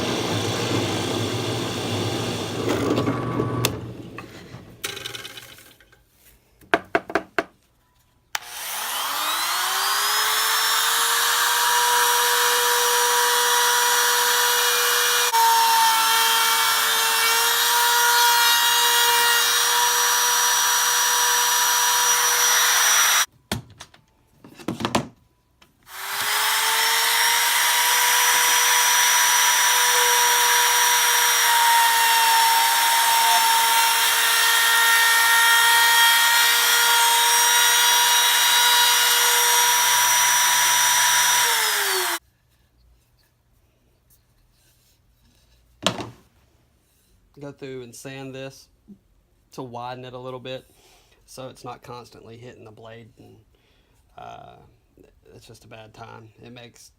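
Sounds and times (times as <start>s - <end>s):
table saw whining: 0.0s - 5.4s, 8.4s - 23.3s, 25.9s - 42.2s.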